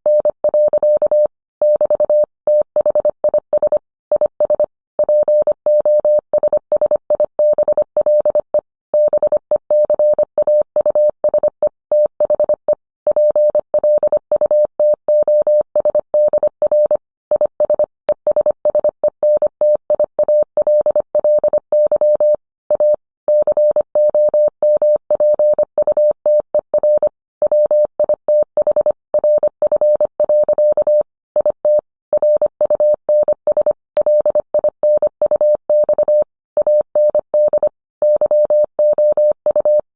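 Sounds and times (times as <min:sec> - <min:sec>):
morse code tone: 0:20.3 - 0:39.9.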